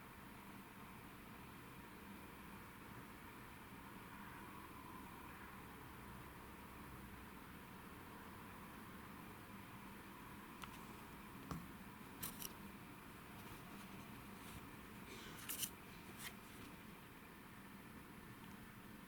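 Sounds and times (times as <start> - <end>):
faint room hiss: 0.0 - 19.0
scratchy rustles: 13.4 - 16.8.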